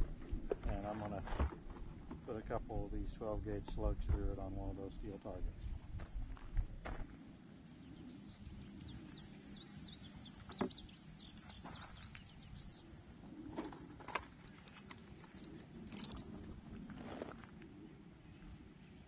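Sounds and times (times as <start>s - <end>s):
small bird chirping: 7.8s - 13.2s.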